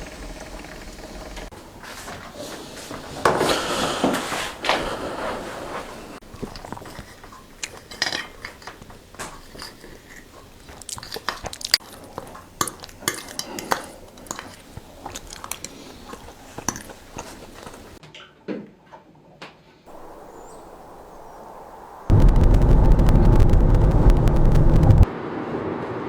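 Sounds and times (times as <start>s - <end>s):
small hard objects clicking: 6.6s - 15.7s.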